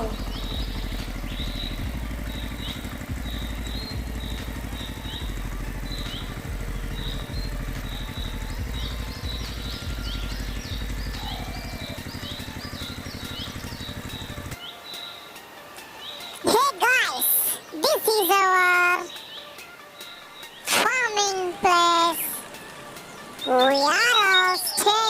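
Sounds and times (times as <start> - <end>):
small motor pulsing: 0.0 - 14.6
birds chirping: 0.0 - 25.0.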